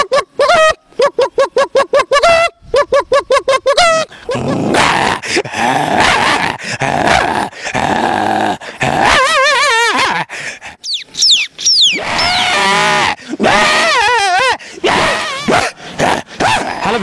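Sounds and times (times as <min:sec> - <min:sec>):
man imitating dog growl: 0:04.2 - 0:10.3, 0:12.0 - 0:17.0
man whistling: 0:10.8 - 0:12.0.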